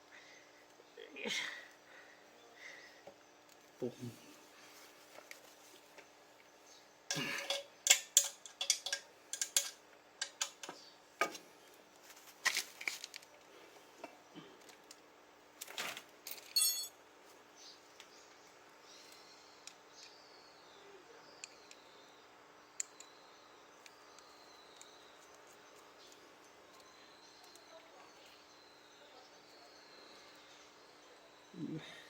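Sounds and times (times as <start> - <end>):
metal tools clinking: 7.1 - 10.7, 16.3 - 17.0.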